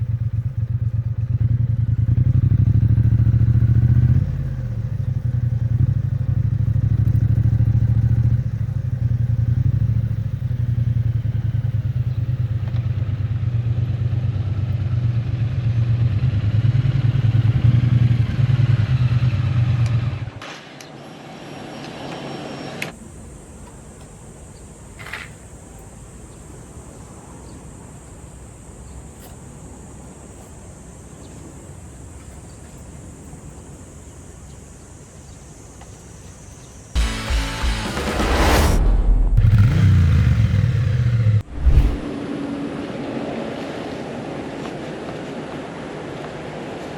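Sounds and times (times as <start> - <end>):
motorcycle engine idling: 0.0 - 20.2
faint high whine: 35.1 - 42.4.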